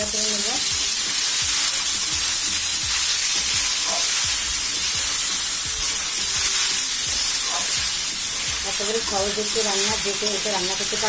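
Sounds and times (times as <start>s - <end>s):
vegetables sizzling in oil: 0.0s - 11.0s
metal spatula scraping a pan: 5.2s - 11.0s.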